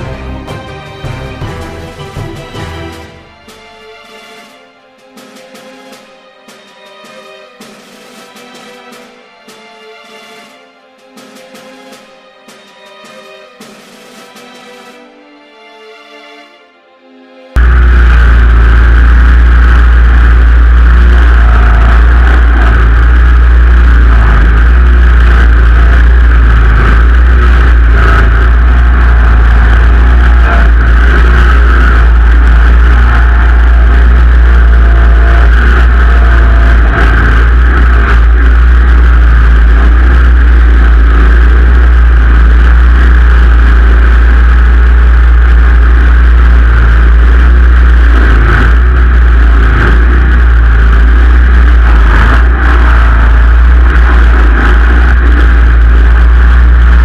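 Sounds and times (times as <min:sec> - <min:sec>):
garden tractor engine running: 0:00.0 - 0:03.4, 0:17.6 - 0:57.0.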